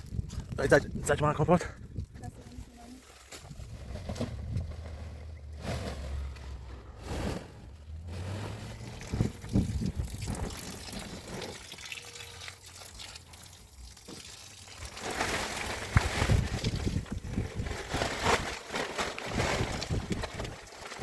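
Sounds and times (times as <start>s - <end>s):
water splashing and trickling: 8.0s - 21.0s.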